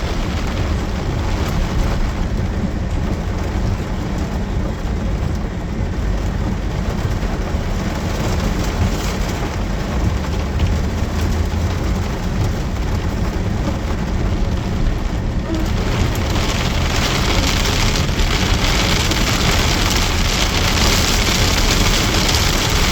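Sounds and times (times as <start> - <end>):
deep continuous rumble: 0.0 - 22.9
heavy rain hissing: 12.7 - 22.9.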